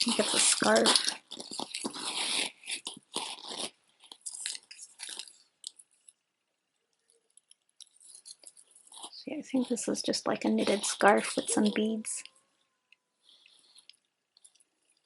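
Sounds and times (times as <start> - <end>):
scarf rustling and crinkling: 0.0 - 6.1.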